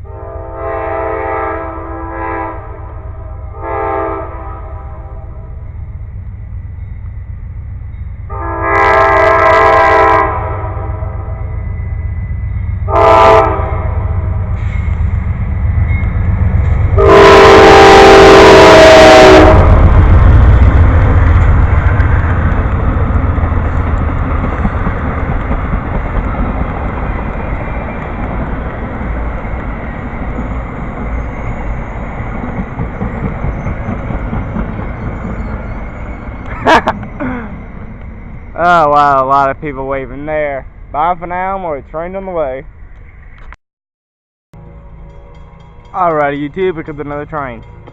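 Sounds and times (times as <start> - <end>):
train horn: 0.0 - 5.6, 8.3 - 11.7, 12.8 - 14.7, 16.9 - 20.1
train rumbling on rails: 0.0 - 43.6, 44.6 - 47.9.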